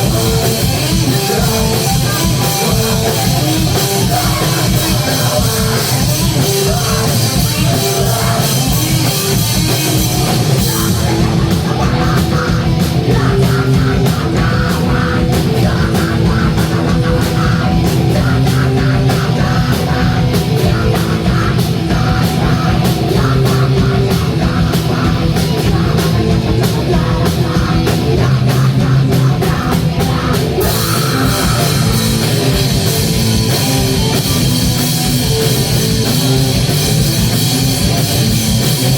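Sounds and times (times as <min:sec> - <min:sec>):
punk rock band playing: 0:00.0 - 0:38.9.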